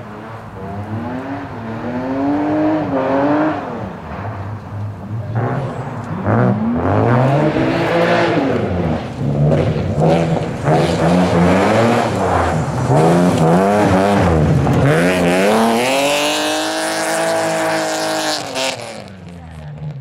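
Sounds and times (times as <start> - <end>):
car engine revving hard: 0.0 - 19.2.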